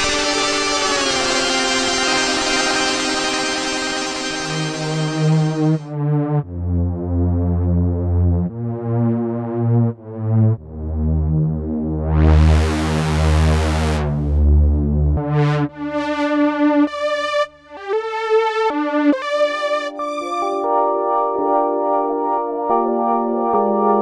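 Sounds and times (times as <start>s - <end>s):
bright hissy synth swell: 0.0s - 5.8s
synthesizer playing held chords: 0.0s - 7.0s, 12.0s - 24.0s.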